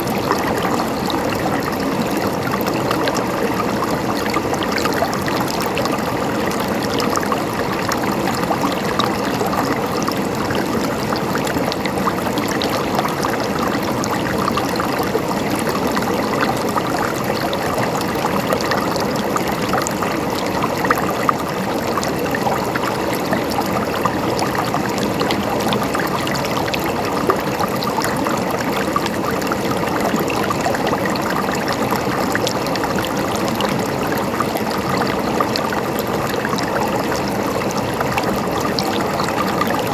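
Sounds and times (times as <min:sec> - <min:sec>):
stream babbling and splashing: 0:00.0 - 0:39.9.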